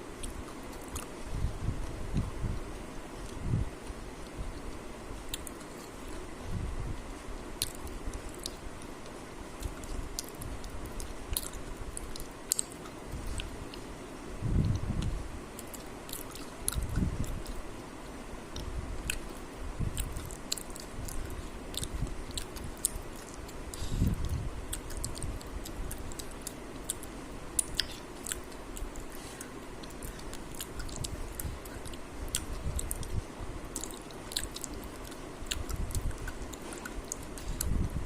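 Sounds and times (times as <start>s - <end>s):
person chewing food: 0.1s - 1.3s, 2.1s - 6.4s, 7.6s - 13.9s, 14.6s - 17.7s, 18.5s - 37.9s
mouth clicks: 18.5s - 37.8s.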